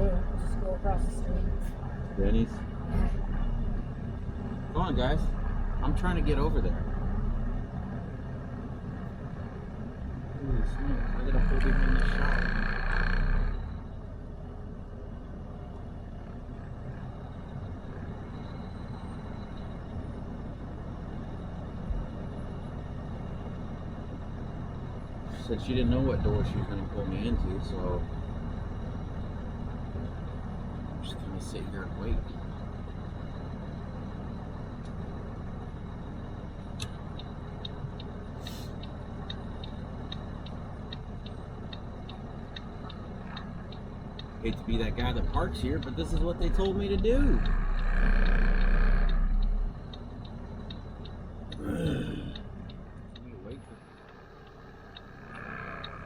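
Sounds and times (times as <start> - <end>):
diesel engine rumbling: 0.0 - 56.0
turn signal ticking: 8.6 - 56.0.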